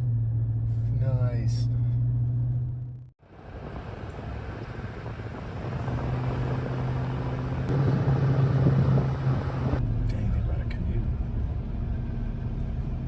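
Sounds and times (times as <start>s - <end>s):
road noise: 0.0s - 13.0s
truck engine hum: 0.0s - 13.0s.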